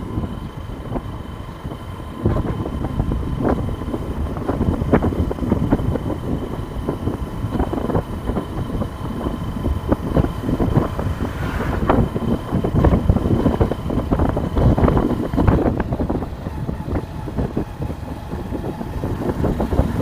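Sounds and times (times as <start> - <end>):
motorcycle engine running: 0.0 - 20.0
road rumble: 0.0 - 20.0
wind buffeting microphone: 0.0 - 20.0.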